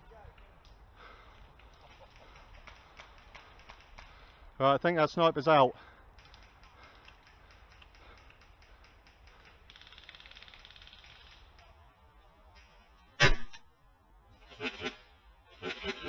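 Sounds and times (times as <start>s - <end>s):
faint background noise: 0.0s - 16.0s
airsoft rifle shot: 13.2s - 13.6s.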